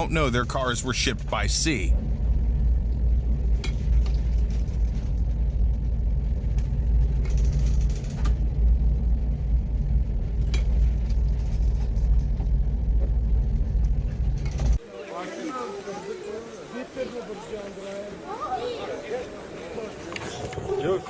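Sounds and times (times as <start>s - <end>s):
heavy low rumble: 0.0s - 14.8s.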